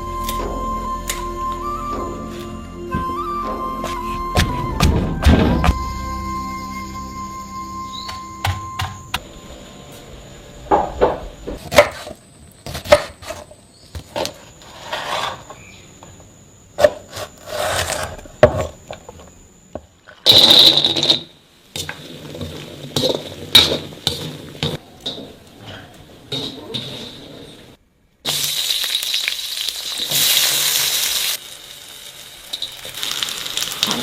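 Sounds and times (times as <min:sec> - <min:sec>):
utensils scraping cookware: 0:21.8 - 0:27.8.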